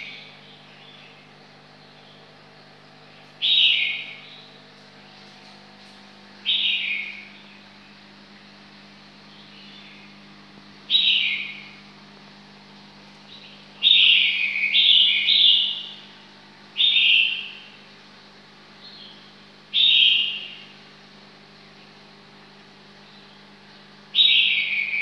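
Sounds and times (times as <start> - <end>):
bird calling: 0.0 - 8.1, 9.2 - 12.0, 13.2 - 17.9, 18.8 - 20.9, 23.0 - 25.0
steady low hum: 0.0 - 25.0.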